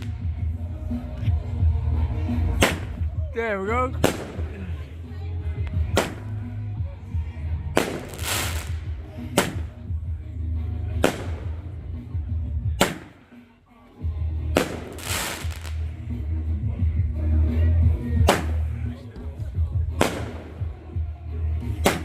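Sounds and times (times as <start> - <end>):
music with heavy bass: 0.0 - 22.0
fireworks exploding: 2.6 - 3.1, 4.0 - 4.6, 7.8 - 9.8, 11.0 - 11.6, 14.6 - 15.9, 20.0 - 20.8.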